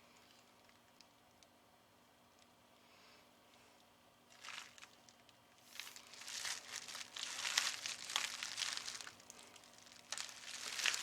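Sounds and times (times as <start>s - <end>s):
packaging crinkling: 4.3s - 11.0s.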